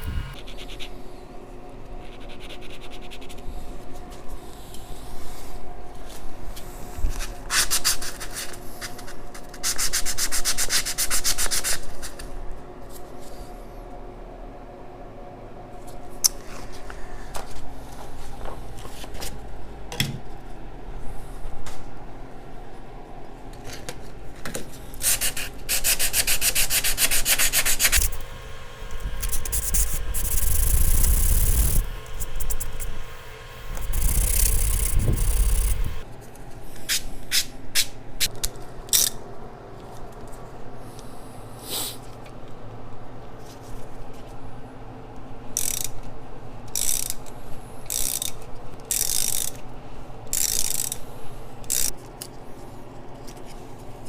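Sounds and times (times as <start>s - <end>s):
razor blade scraping metal: 0.0s - 0.4s, 26.8s - 36.0s.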